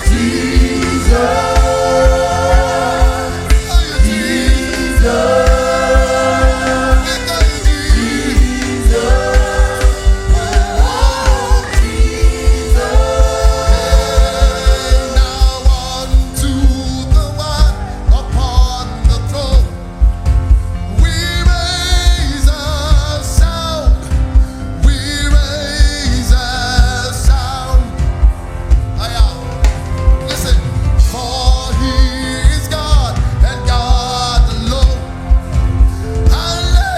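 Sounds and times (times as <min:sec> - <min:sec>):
voices singing in harmony: 0:00.0 - 0:18.4
steady drum beat: 0:00.0 - 0:36.9.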